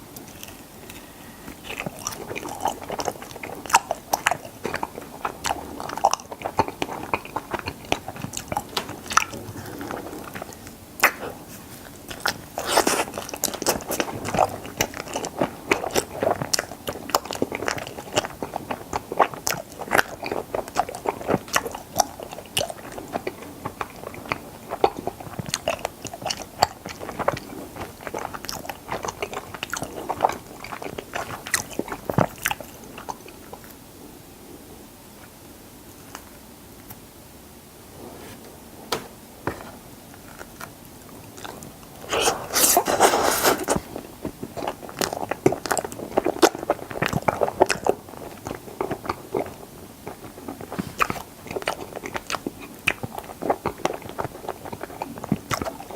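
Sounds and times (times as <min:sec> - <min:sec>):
person chewing with wet mouth clicks: 0:00.1 - 0:11.4, 0:40.4 - 0:55.9.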